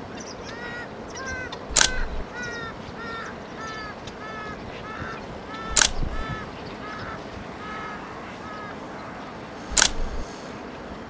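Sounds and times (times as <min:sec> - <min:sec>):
bird calling repeated note: 0:01.2 - 0:07.2, 0:09.7 - 0:10.3
sharp clicks: 0:01.7 - 0:02.3, 0:05.7 - 0:06.3, 0:09.7 - 0:10.3.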